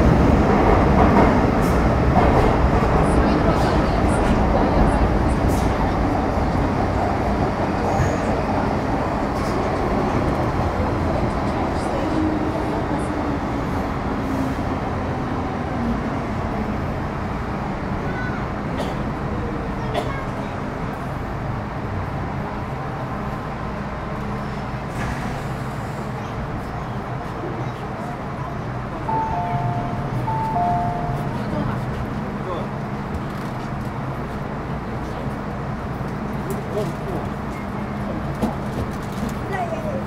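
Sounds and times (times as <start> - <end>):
train wheels and motors rumbling: 0.0 - 40.0.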